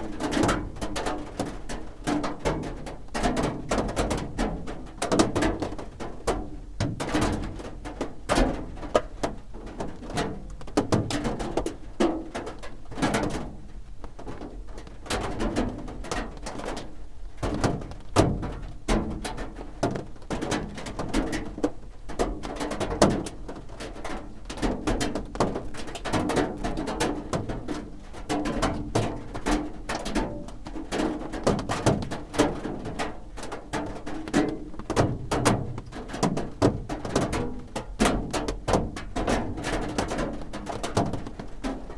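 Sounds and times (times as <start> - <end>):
raindrops drumming on a roof: 0.0 - 41.9.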